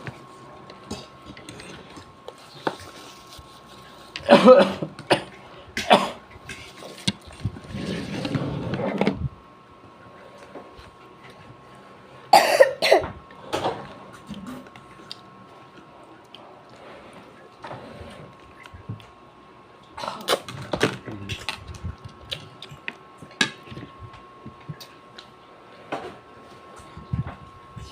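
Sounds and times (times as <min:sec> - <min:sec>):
person coughing: 0:04.2 - 0:06.2, 0:12.3 - 0:13.2
throat clearing: 0:04.2 - 0:06.2.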